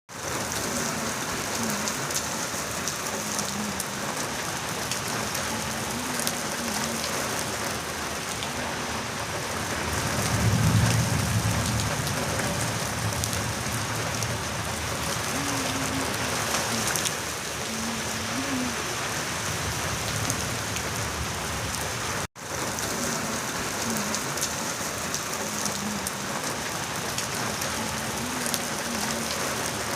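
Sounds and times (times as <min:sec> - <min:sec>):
rain pattering on a surface: 0:00.1 - 0:29.9
low rumble: 0:09.3 - 0:16.2.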